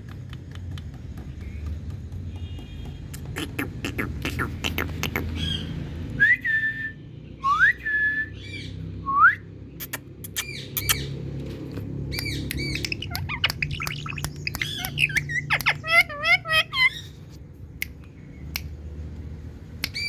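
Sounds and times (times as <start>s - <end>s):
parrot clicks and squawks: 3.1s - 5.4s, 11.8s - 18.7s
parrot whistling: 12.2s - 17.1s.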